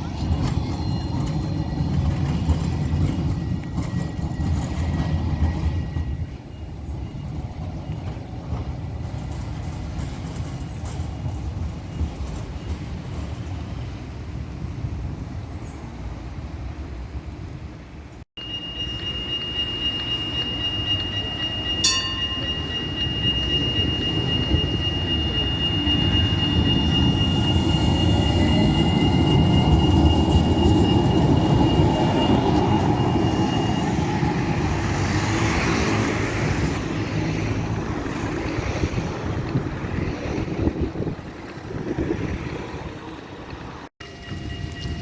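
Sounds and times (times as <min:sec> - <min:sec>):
tram rumbling on rails: 0:00.0 - 0:45.0
high-pitched whine: 0:18.4 - 0:36.4.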